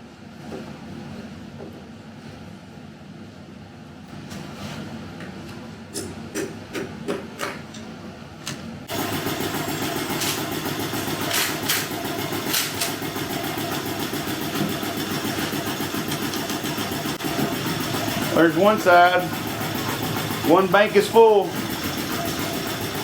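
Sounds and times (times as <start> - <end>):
mechanical running noise: 8.8 - 23.0.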